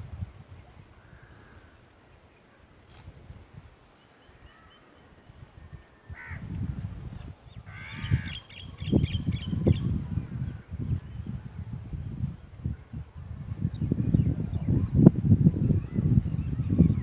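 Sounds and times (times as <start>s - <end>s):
wind rumbling on microphone: 0.0s - 17.0s
crows cawing: 1.0s - 1.8s, 6.1s - 6.5s, 7.7s - 8.4s.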